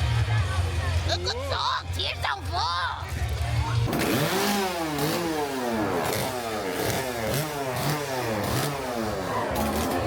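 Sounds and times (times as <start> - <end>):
music: 0.0 - 3.9
small engine revving: 3.8 - 10.0.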